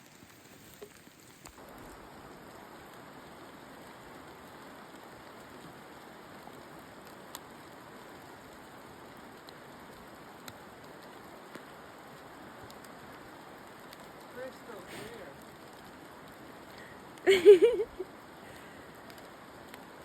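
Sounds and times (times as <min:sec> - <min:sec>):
steady rain hiss: 0:00.0 - 0:20.0
single raindrop ticks: 0:06.4 - 0:07.5, 0:10.4 - 0:14.4, 0:18.5 - 0:20.0.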